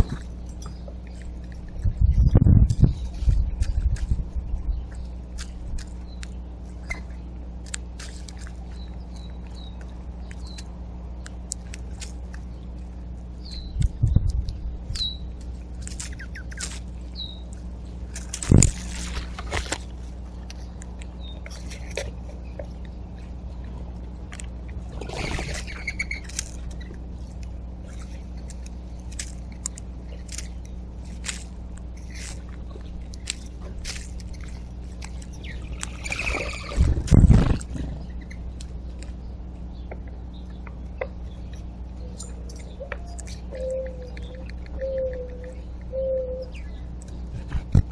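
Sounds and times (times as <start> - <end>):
birds chirping: 0.0 - 47.9
steady low hum: 0.0 - 47.9.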